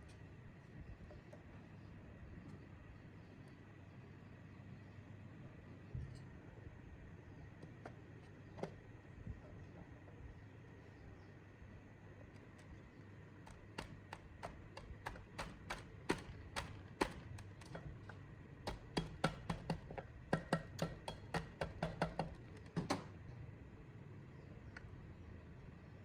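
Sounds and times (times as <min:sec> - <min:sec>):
taps and clicks on metal: 0:13.5 - 0:22.4.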